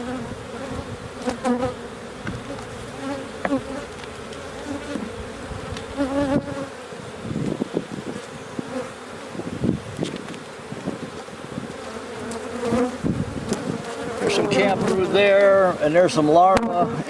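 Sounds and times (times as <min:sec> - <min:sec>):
bees buzzing: 0:00.0 - 0:17.0
bees whining past: 0:00.0 - 0:17.0
light knocks: 0:02.2 - 0:02.7.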